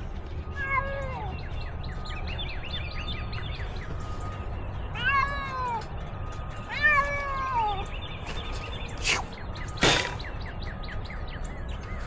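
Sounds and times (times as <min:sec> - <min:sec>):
cat meowing: 0:00.6 - 0:01.4, 0:05.0 - 0:05.9, 0:06.7 - 0:08.5
short rushing noises: 0:08.3 - 0:10.3.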